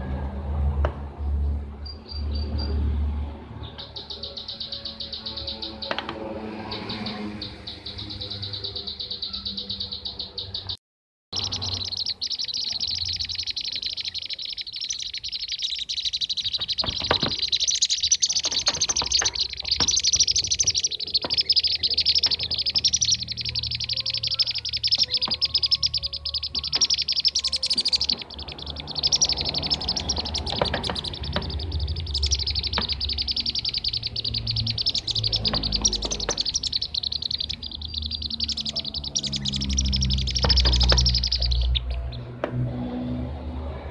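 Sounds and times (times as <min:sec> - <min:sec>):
birds chattering calls: 0:01.8 - 0:10.8, 0:11.4 - 0:42.4.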